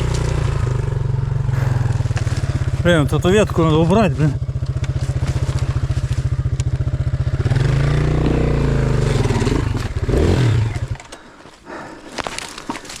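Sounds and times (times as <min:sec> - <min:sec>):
motorcycle engine idling and revving: 0:00.0 - 0:11.4.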